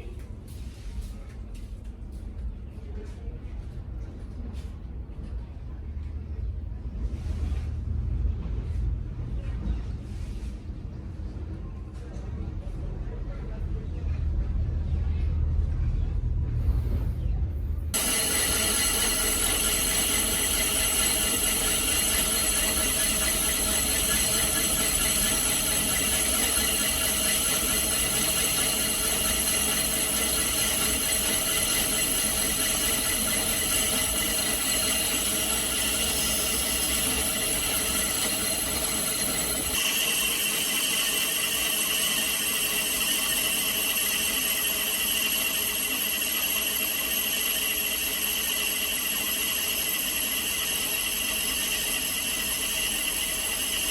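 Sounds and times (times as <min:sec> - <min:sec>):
high machine whine: 0:17.8 - 0:53.9
lathe machine running: 0:17.9 - 0:53.9
lathe cutting squeal: 0:18.0 - 0:53.9.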